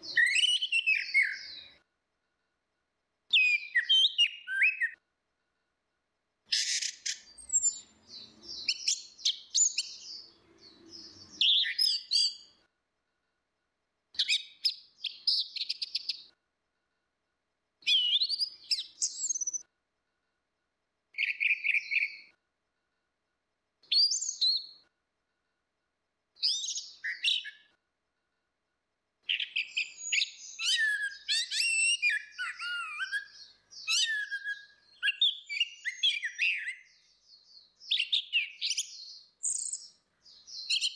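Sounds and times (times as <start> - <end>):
thrush whistling song: 0.0 - 1.7, 3.3 - 5.0, 29.3 - 36.9.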